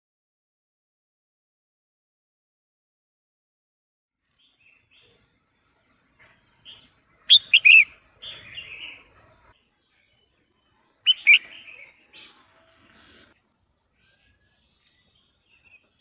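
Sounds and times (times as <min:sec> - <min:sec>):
bird calling loud notes: 0:07.3 - 0:07.9, 0:11.1 - 0:11.8
bird rough chatter: 0:07.3 - 0:07.9.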